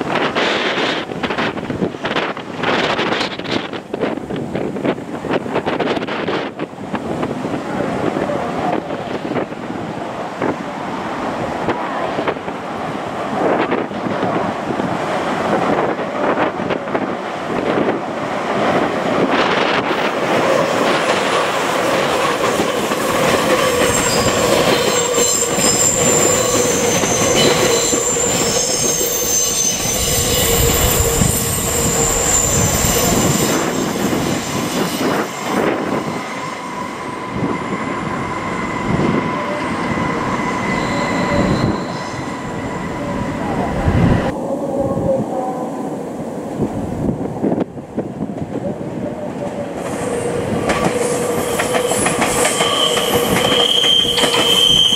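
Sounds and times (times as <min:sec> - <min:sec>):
high wheel squeal: 0:23.4 - 0:44.3, 0:49.9 - 0:54.9.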